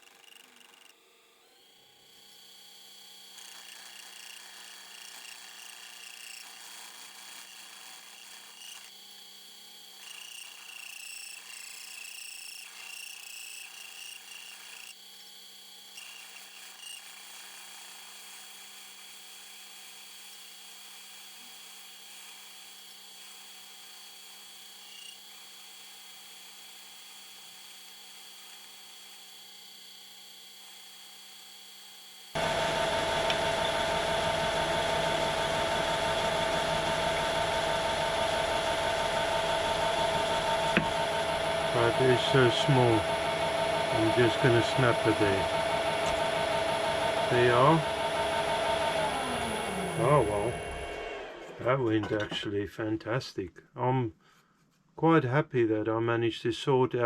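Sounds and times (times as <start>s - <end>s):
lathe motor whine: 0.0s - 52.4s
tool scraping metal: 39.2s - 46.5s, 51.5s - 52.5s.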